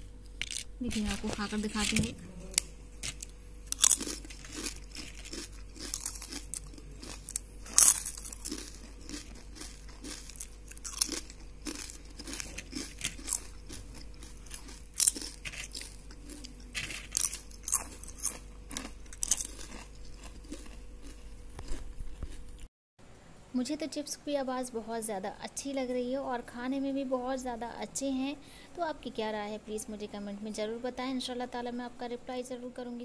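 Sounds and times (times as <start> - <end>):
chips crunching: 0.2 - 22.7
chewing: 2.5 - 22.7.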